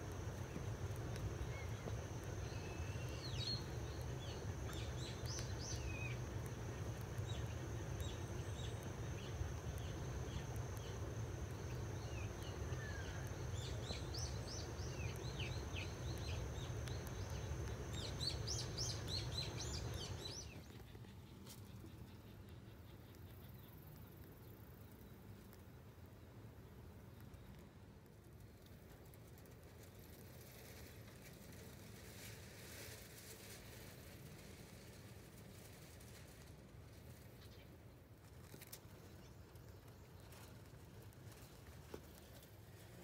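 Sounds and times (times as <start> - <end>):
thin high whine: 0.0 - 20.9
small birds chirping: 0.0 - 27.8
steady low hum: 0.0 - 43.0.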